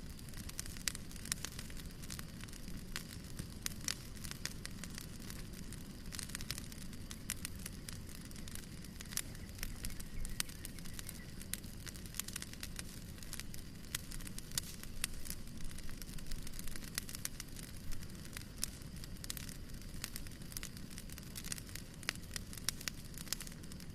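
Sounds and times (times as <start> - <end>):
low rumble of flame: 0.0 - 23.9
wood fire crackling and popping: 0.0 - 23.9.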